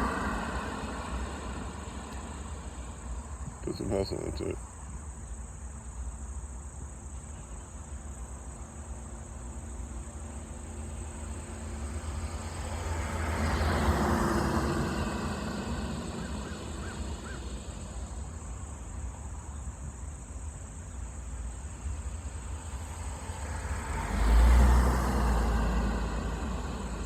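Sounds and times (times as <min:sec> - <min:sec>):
car passing: 0:00.0 - 0:04.6, 0:09.8 - 0:19.2, 0:21.7 - 0:27.0.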